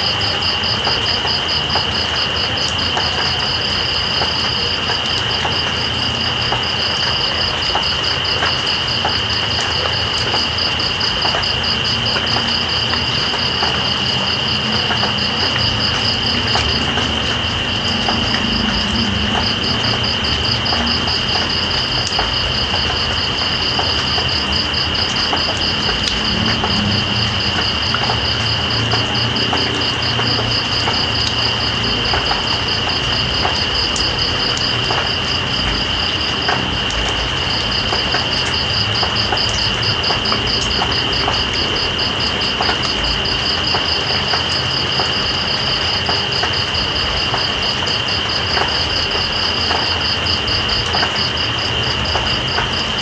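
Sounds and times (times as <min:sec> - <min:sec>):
rain hiss: 0:00.0 - 0:53.0.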